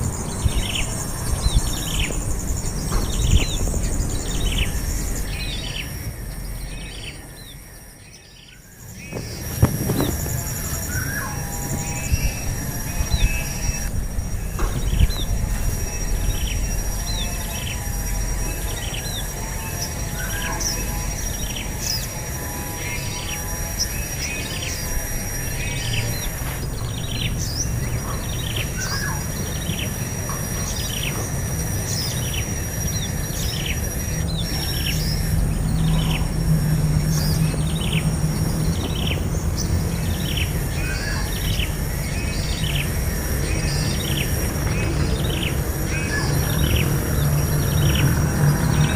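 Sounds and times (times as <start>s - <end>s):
low background rumble: 0.0s - 21.7s
bird chirping: 0.0s - 48.9s
high whine: 0.0s - 48.9s.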